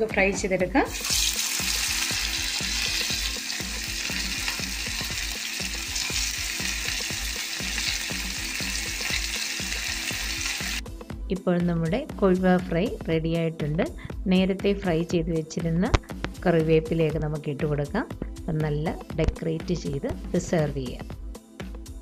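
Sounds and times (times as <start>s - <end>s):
fish sizzling in hot oil: 0.8s - 10.8s.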